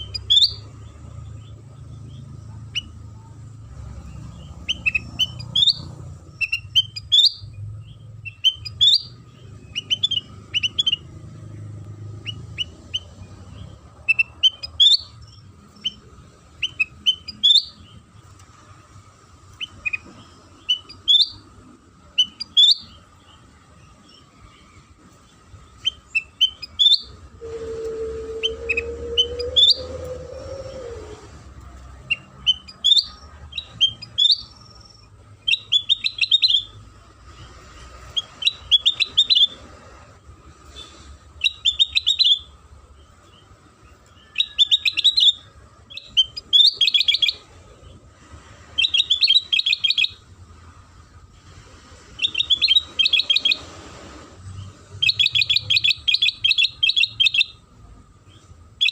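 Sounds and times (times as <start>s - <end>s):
bird chirping in rapid bursts: 0.0s - 18.3s, 19.3s - 27.3s, 28.4s - 31.0s, 32.0s - 39.7s, 40.7s - 48.1s, 48.7s - 50.3s, 52.1s - 53.7s, 54.4s - 58.9s
low steady drone: 27.1s - 32.0s.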